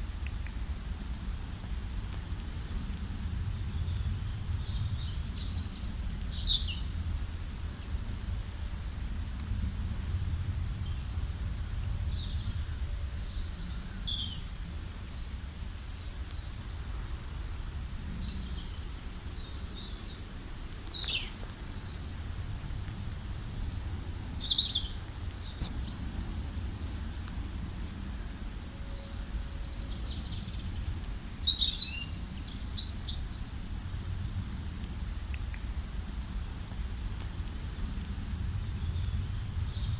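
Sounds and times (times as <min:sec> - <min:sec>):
steady low rumble: 0:00.0 - 0:15.0, 0:15.6 - 0:32.8, 0:33.5 - 0:39.9
songbirds chirping: 0:10.4 - 0:33.8.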